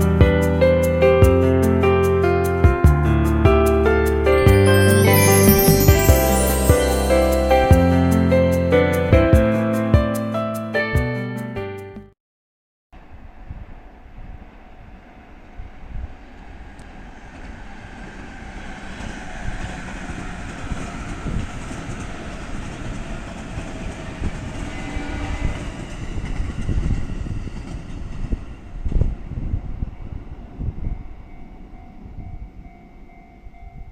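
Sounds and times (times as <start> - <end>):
train rumble: 14.0 - 33.9.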